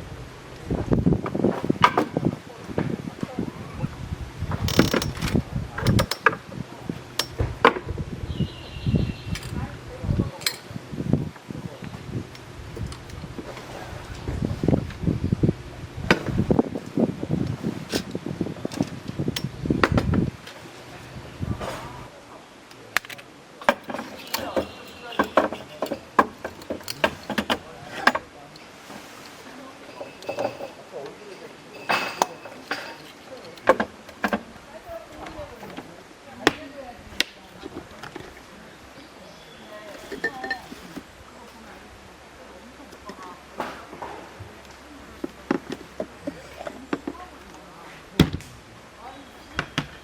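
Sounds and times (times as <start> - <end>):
camping gear rattling: 0.9 - 8.6, 9.2 - 15.2, 16.0 - 22.1, 23.0 - 36.6, 39.7 - 41.9, 45.0 - 48.6
objects clicking and clattering: 4.5 - 6.4, 7.1 - 7.9, 23.0 - 28.3, 31.8 - 34.5, 40.0 - 41.1.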